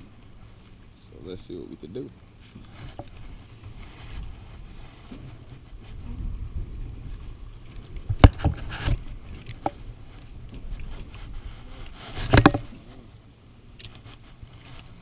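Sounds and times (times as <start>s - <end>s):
wind rumble on microphone: 2.6s - 15.0s
sharp knocks: 12.2s - 12.7s.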